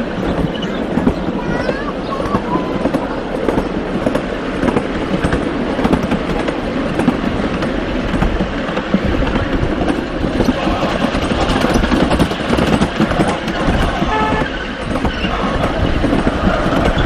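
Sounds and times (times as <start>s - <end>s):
mini train rumbling on track: 0.0s - 17.0s
wheels clicking on rails: 0.0s - 17.0s.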